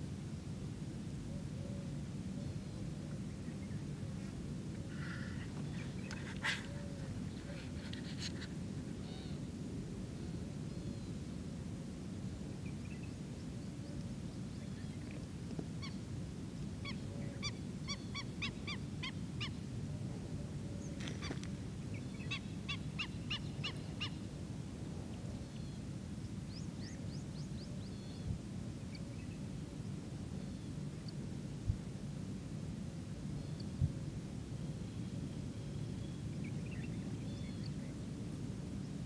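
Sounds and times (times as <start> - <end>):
birds calling: 4.8 - 9.4.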